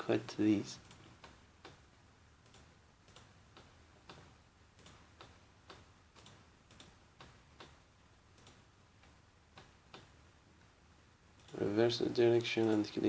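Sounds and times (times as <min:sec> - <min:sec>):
low background hum: 0:00.0 - 0:13.0
computer mouse clicks: 0:02.4 - 0:07.8, 0:08.4 - 0:10.2.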